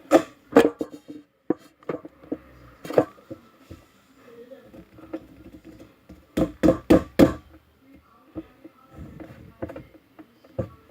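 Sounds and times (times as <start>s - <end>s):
loud knocks: 6.4s - 7.5s.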